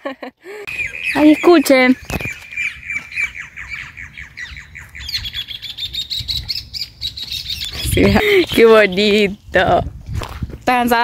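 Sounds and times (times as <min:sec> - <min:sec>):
birds chirping: 0:00.4 - 0:09.8
bird trilling chatter: 0:00.7 - 0:09.3.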